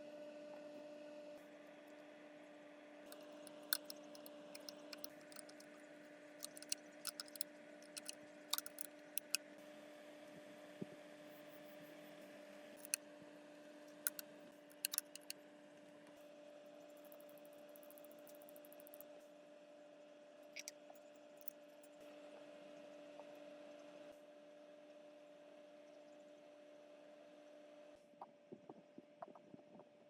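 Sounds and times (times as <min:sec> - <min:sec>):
sharp light clicks: 0:03.1 - 0:05.7, 0:06.4 - 0:09.4, 0:14.0 - 0:14.2, 0:14.8 - 0:15.3.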